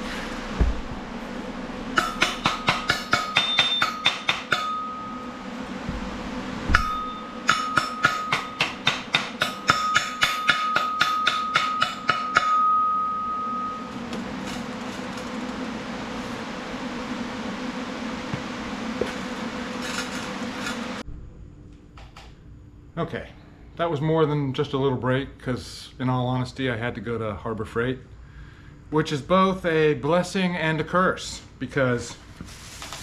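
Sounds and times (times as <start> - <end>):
hammer striking ringing steel: 1.9 - 14.6.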